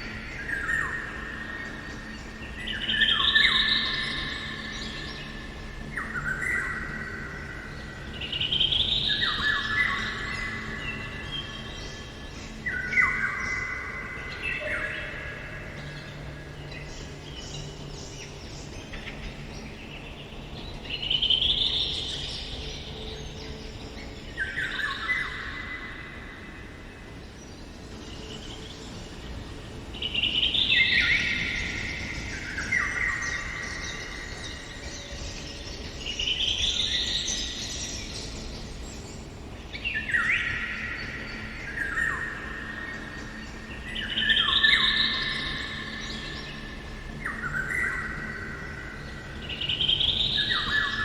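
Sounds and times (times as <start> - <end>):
bird singing: 0.0 - 51.0
faint forest background: 0.0 - 51.0.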